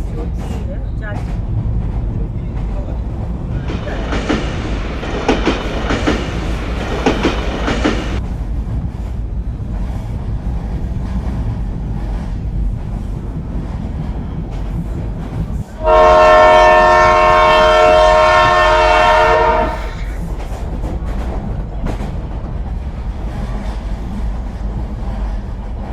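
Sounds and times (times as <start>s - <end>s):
train rumbling: 0.0s - 25.9s
wheels clacking over rail joints: 0.0s - 25.9s
train horn blast: 15.8s - 20.0s.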